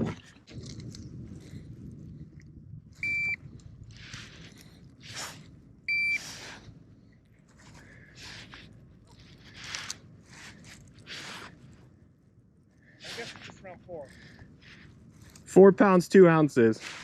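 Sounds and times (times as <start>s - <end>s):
short electronic beeps: 3.0s - 3.4s, 5.9s - 6.2s.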